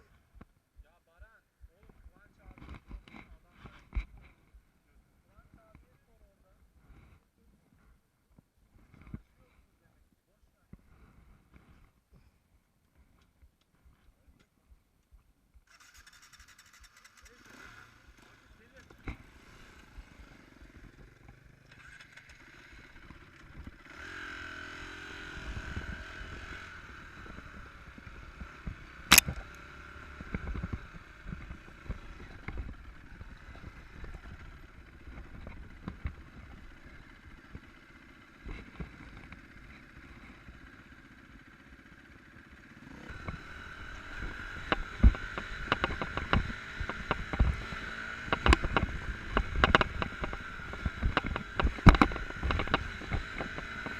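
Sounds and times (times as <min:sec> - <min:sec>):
motorcycle engine revving: 0:15.7 - 0:53.9
motorcycle knocks and clatters: 0:44.2 - 0:53.9.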